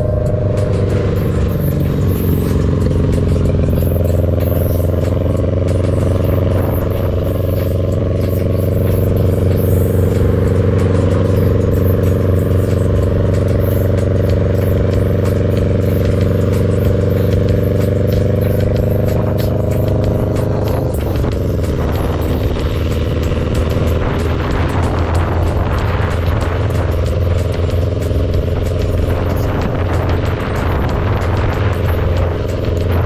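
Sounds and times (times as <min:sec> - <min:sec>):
motorcycle engines droning: 0:00.0 - 0:33.0
wind rushing past microphone: 0:18.7 - 0:33.0.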